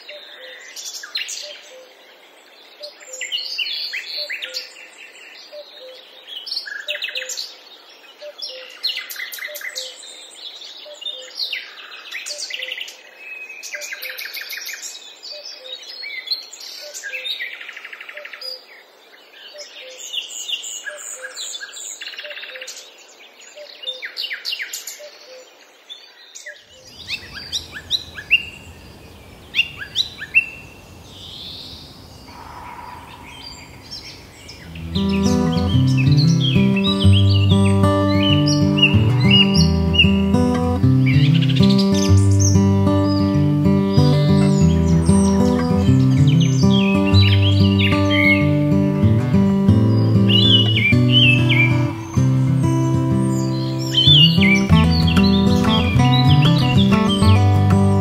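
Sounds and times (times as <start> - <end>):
birds chirping and singing: 26.8 - 58.0.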